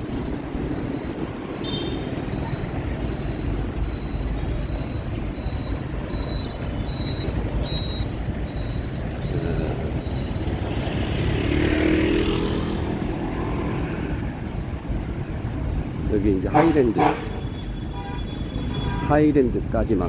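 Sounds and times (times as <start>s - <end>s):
rumble of passing vehicles: 0.0s - 20.0s
vehicle passing close by: 9.0s - 15.4s.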